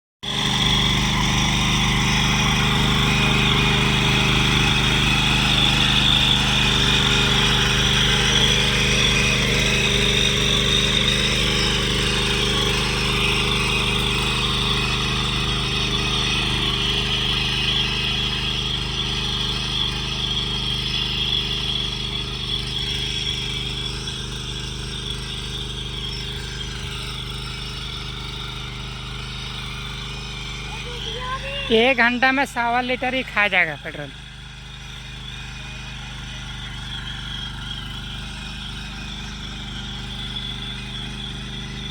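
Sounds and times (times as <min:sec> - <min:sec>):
small petrol engine running: 0:00.2 - 0:41.9
high whine: 0:29.0 - 0:41.9.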